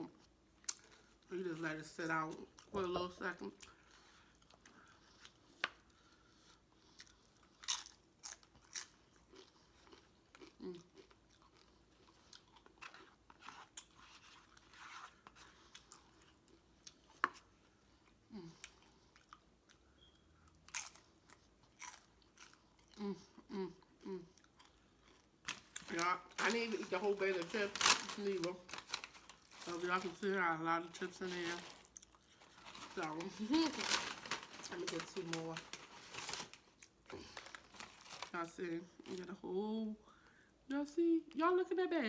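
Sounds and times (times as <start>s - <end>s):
person chewing food: 3.6s - 26.0s, 31.7s - 33.1s
crisp crunches: 25.4s - 39.2s.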